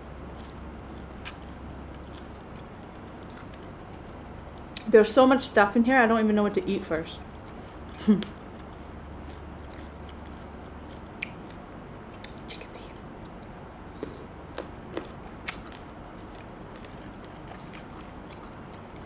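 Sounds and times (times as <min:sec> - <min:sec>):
steady low hiss: 0:00.0 - 0:19.0.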